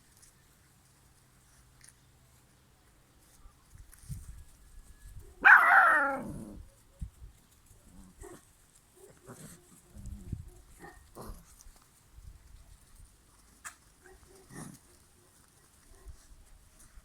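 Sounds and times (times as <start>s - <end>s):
puppy yelping: 5.4s - 6.5s.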